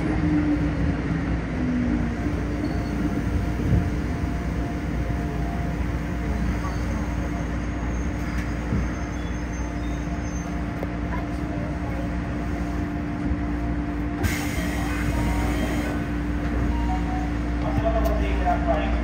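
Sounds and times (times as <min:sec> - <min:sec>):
electric train braking rumble: 0:14.1 - 0:17.6
hiss of air: 0:14.2 - 0:16.1.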